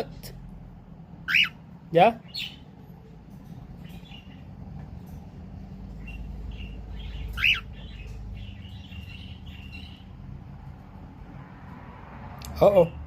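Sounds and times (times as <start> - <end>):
cockatiel chirping: 1.3 - 1.6, 6.0 - 10.0.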